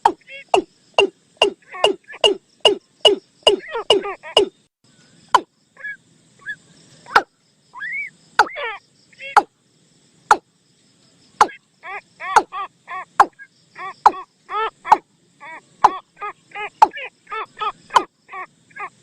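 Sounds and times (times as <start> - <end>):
short arched bird calls: 0.0 - 9.6, 11.3 - 19.0
bird call sweeping notes: 0.5 - 4.5.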